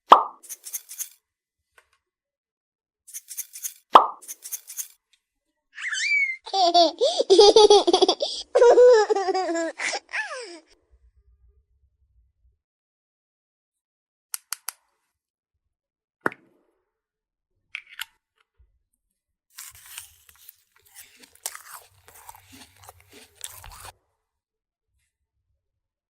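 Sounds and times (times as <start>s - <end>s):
plastic toy pieces clicking: 0.4s - 1.2s, 3.1s - 5.0s
plastic packaging crinkling: 19.6s - 23.9s.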